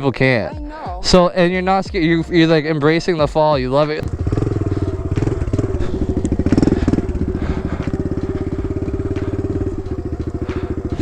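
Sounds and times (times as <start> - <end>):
small motorcycle engine idling: 4.0 - 11.0.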